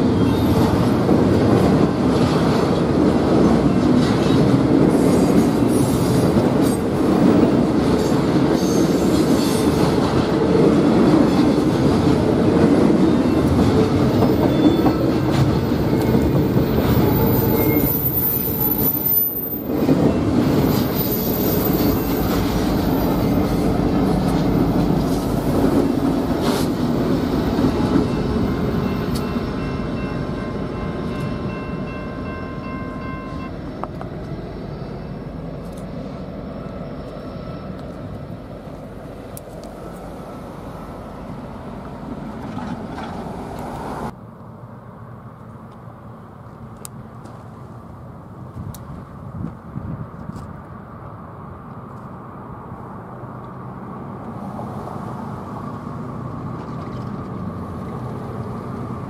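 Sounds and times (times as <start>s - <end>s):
train wheels rumbling on rails: 0.0s - 44.2s, 53.4s - 59.0s
high wheel squeal: 8.5s - 9.8s, 13.1s - 23.3s.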